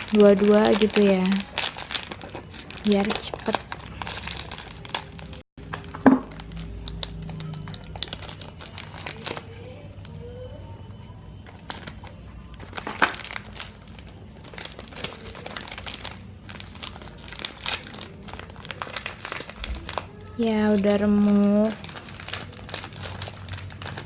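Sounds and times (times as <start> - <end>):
sharp clicks and crackles: 0.0 - 10.2
plastic snack packets crinkling: 0.0 - 24.0.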